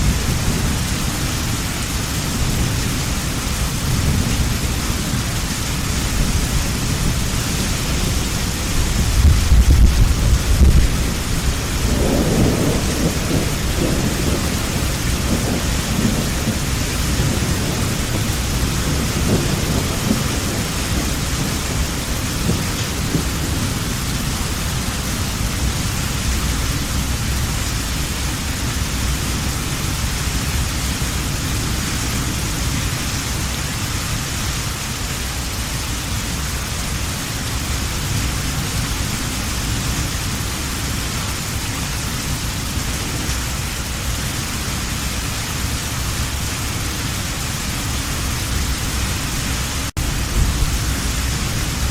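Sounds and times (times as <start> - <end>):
low rumble of thunder: 0.0 - 33.8, 47.4 - 51.9
heavy rain falling: 0.0 - 51.9.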